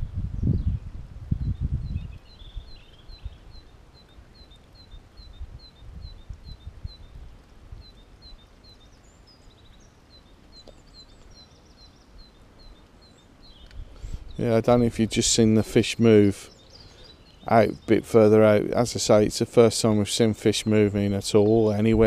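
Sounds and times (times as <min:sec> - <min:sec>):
faint bird notes: 0:00.0 - 0:22.0.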